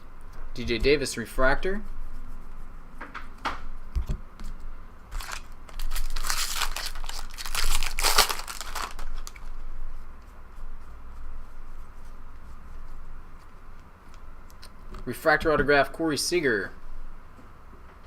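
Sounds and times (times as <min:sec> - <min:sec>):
foil wrapper crinkling: 0:05.1 - 0:09.5.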